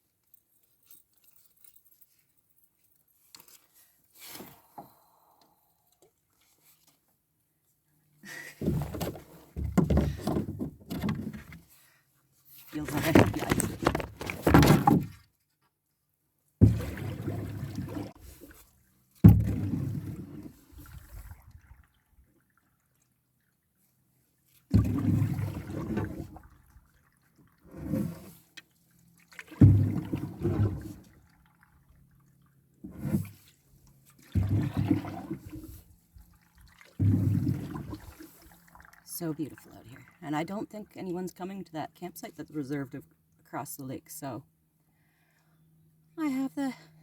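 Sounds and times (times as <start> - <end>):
water splashing against a canoe: 8.3 - 15.4, 16.6 - 40.4
person speaking: 12.7 - 14.3, 39.1 - 44.4, 46.2 - 46.9.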